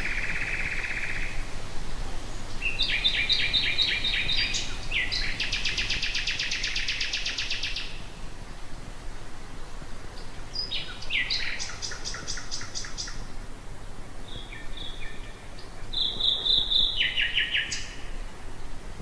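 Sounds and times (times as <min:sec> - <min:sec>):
nightingale singing: 0:00.0 - 0:01.4, 0:02.4 - 0:08.1, 0:10.2 - 0:13.3, 0:14.2 - 0:18.2.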